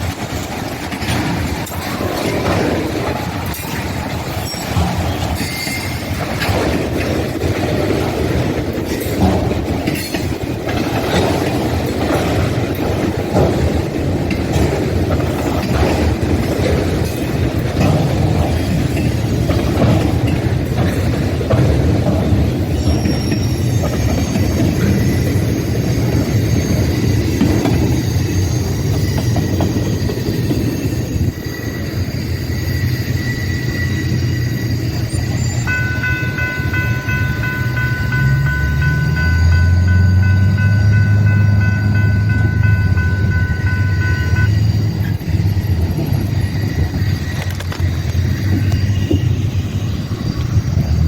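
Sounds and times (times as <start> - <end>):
freight train rumbling past: 0.0 - 51.0
high whines from rails: 0.0 - 51.0
bright steady tones: 34.9 - 45.4.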